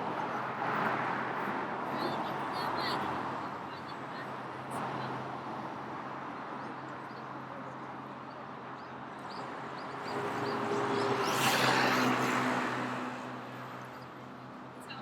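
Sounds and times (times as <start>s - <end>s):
city street traffic: 0.0s - 15.0s
vehicle passing close by: 10.0s - 13.7s.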